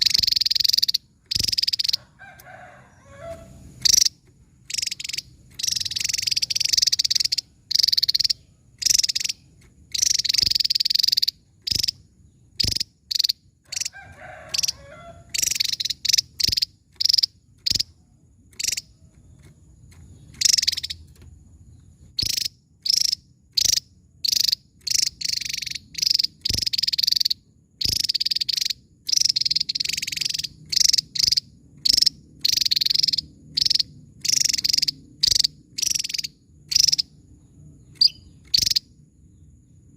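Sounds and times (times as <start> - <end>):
bird singing high-pitched notes: 0.0 - 2.0, 2.9 - 13.9, 14.6 - 18.0, 20.2 - 21.2, 22.2 - 37.1, 37.9 - 38.9.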